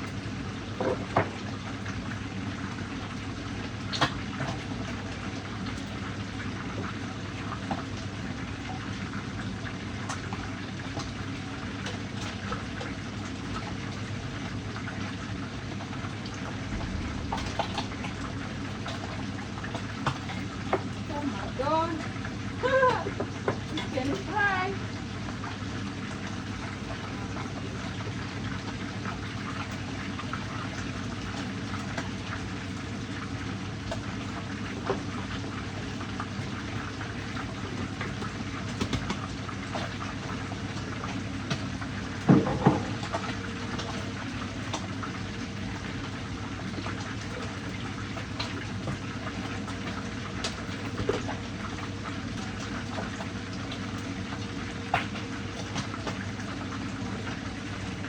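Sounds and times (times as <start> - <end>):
low hum: 16.0 - 20.5.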